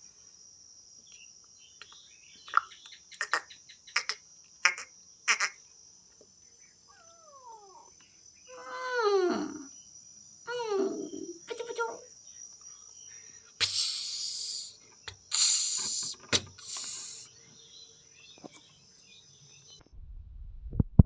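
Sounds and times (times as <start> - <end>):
crickets chirring: 0.0 - 19.8
cat meowing: 6.9 - 7.9
hiss-like noise bursts: 13.6 - 17.4.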